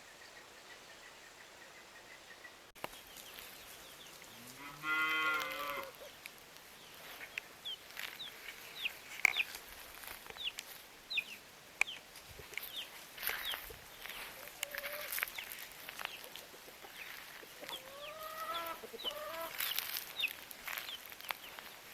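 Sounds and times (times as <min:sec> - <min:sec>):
cow mooing: 0:04.4 - 0:06.0.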